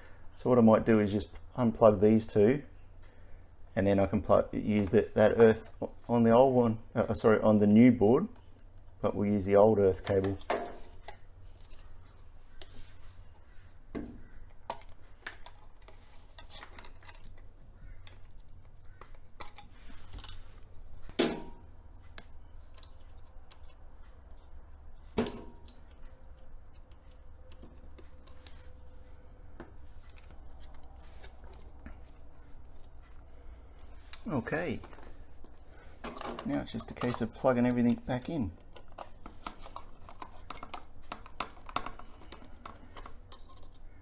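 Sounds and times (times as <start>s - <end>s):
low steady hum: 0.0s - 44.0s
connector clicks and handling: 33.8s - 43.9s.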